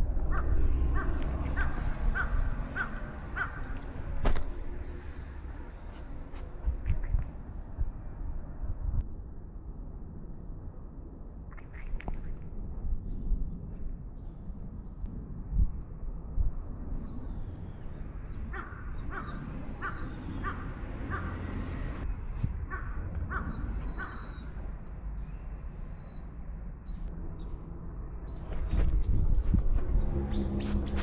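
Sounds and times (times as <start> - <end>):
low outdoor rumble: 0.0 - 31.0
crow cawing: 0.3 - 3.9, 18.6 - 21.5, 22.7 - 24.4.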